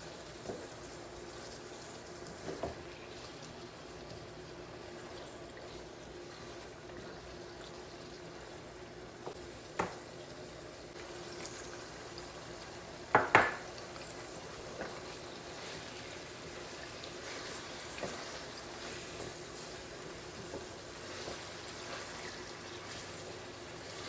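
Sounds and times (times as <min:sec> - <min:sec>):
metal spoon knocking on pot: 0:13.1 - 0:13.7.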